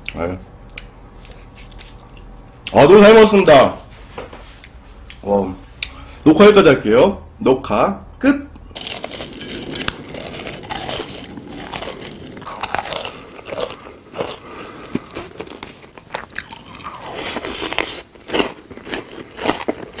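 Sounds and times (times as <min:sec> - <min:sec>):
crunchy biting and chewing: 0:08.8 - 0:20.0.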